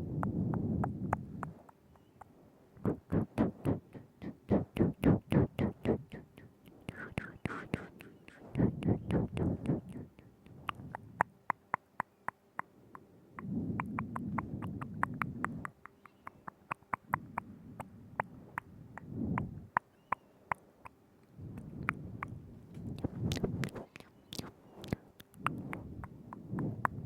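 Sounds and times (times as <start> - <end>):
low muffled noise: 0.0 - 11.5, 20.4 - 27.0
wet tongue and lip clicks: 0.2 - 27.0.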